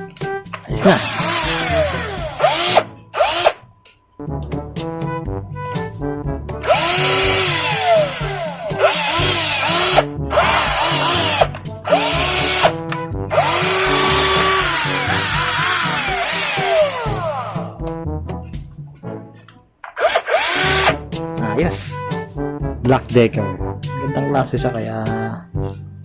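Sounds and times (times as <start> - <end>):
background music: 0.0 - 26.0
cordless drill motor whine: 0.8 - 3.6, 6.6 - 17.8, 19.9 - 21.0.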